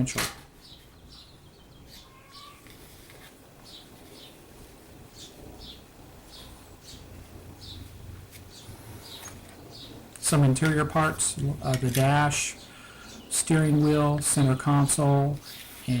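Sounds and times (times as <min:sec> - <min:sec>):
faint low room hum: 0:00.0 - 0:16.0
small bird chirping: 0:00.6 - 0:02.8, 0:03.6 - 0:10.0.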